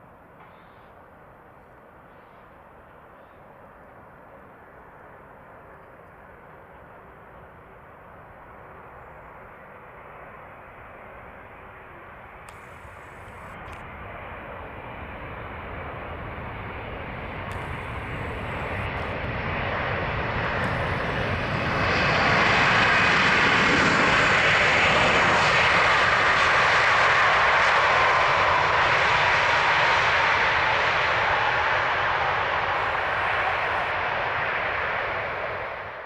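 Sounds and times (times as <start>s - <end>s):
jet engines landing: 2.8s - 36.0s.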